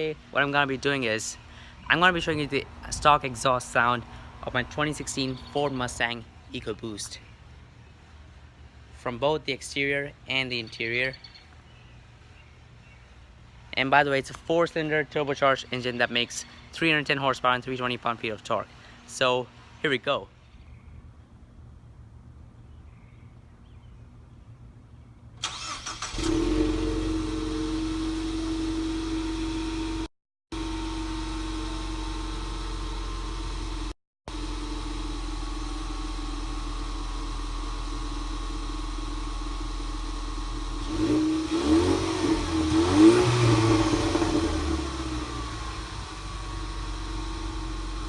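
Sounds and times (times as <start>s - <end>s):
car engine starting and idling: 25.4s - 48.0s
engine revving in quick blips: 40.7s - 46.4s.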